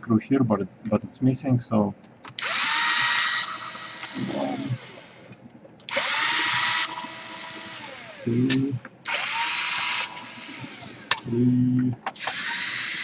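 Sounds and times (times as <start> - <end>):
electric screwdriver whine: 2.4 - 5.2, 5.9 - 11.3, 12.2 - 13.0.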